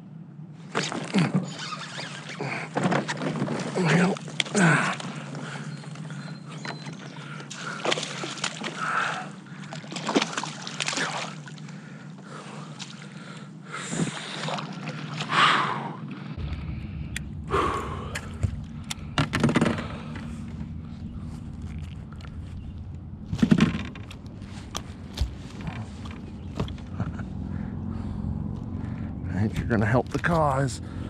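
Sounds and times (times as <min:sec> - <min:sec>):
steady low hum: 0:00.0 - 0:31.0
water splashing beside kayak: 0:01.8 - 0:16.2
low rumble: 0:15.7 - 0:31.0
knocks and rustles of handling: 0:21.3 - 0:27.2.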